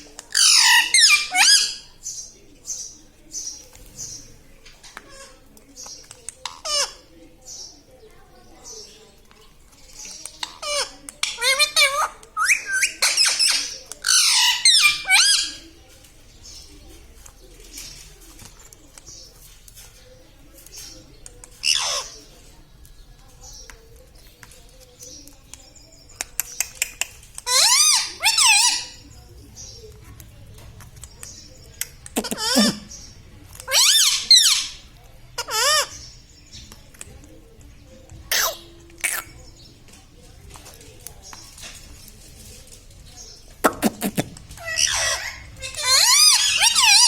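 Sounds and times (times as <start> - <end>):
parrot shrill calls: 0.3 - 1.8, 10.6 - 15.6, 27.5 - 29.0, 33.7 - 34.8, 44.6 - 47.0
parrot warbling calls: 0.3 - 1.8, 33.7 - 34.8, 44.6 - 47.0
faint scratching: 13.3 - 27.5, 35.8 - 47.0.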